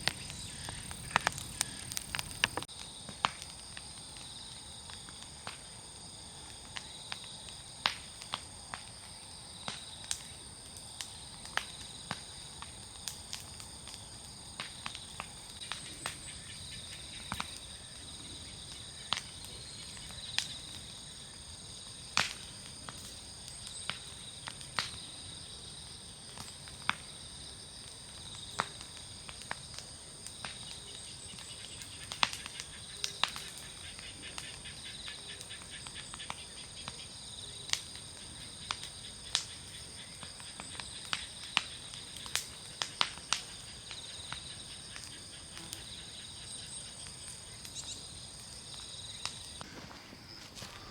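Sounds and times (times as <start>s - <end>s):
insects singing: 0.0s - 2.7s, 38.4s - 50.9s
bonfire crackling: 0.0s - 50.9s.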